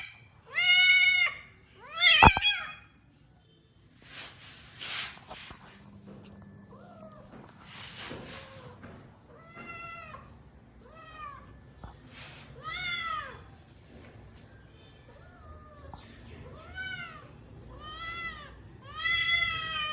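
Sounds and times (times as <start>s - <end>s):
cat meowing: 0.5s - 2.9s.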